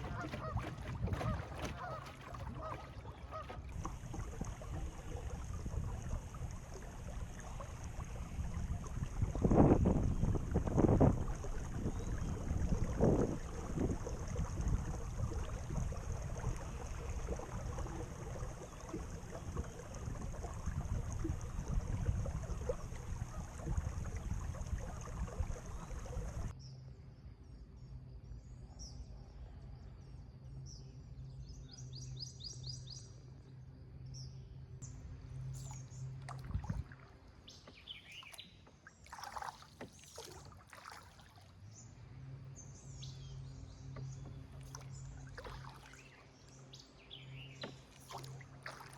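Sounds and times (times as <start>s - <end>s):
birds chirping: 0.0s - 7.6s
wind and water noise: 0.0s - 26.7s, 30.7s - 48.9s
low steady hum: 0.0s - 31.6s.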